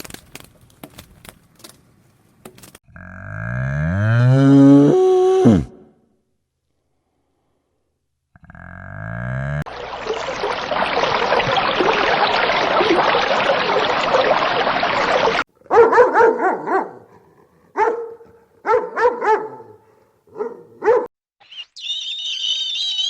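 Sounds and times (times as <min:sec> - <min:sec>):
dog barking: 0:15.6 - 0:21.1.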